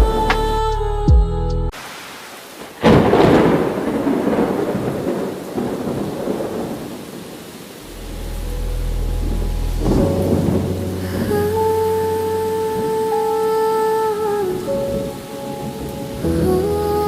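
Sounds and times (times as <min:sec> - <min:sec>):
rain falling: 0:01.7 - 0:17.0
thunder rumbling: 0:02.6 - 0:13.4.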